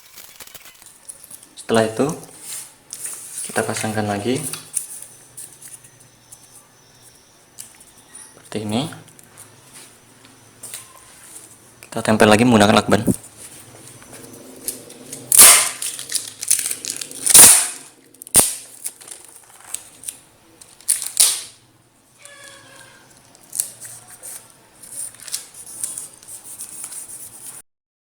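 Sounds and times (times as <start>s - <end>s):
tape crackling and rustling: 0.0s - 1.5s, 13.2s - 21.6s, 22.2s - 27.6s
packing tape ripping: 15.3s - 21.6s, 23.1s - 27.0s
tape snapping: 15.3s - 21.6s.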